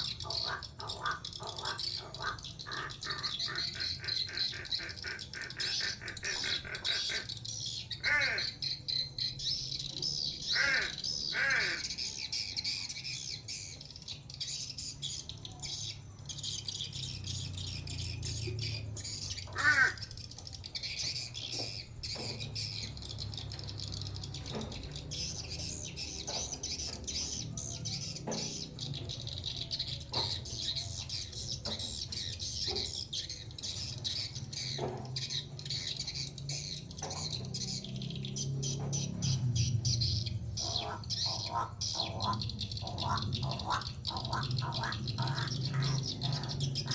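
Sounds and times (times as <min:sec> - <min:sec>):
crow calling harshly: 0:00.0 - 0:08.8, 0:10.4 - 0:12.8, 0:19.0 - 0:21.5, 0:40.6 - 0:46.9.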